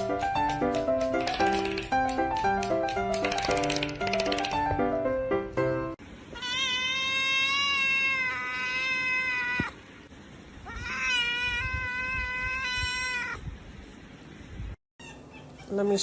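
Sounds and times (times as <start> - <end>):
cat meowing: 6.3 - 9.8, 10.6 - 13.4, 15.0 - 15.8.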